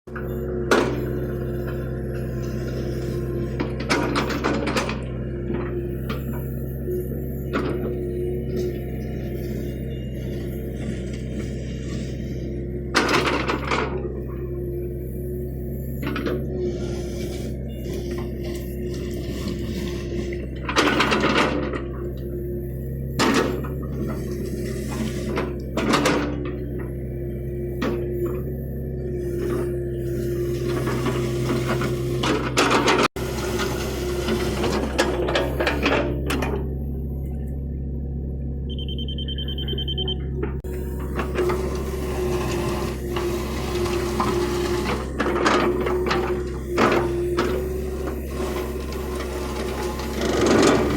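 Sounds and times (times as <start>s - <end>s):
excavator diesel engine running: 0.1s - 50.9s
hydraulic whine: 0.1s - 50.9s
metal clanks and scrapes: 15.8s - 22.3s
high steady tone: 38.7s - 41.0s.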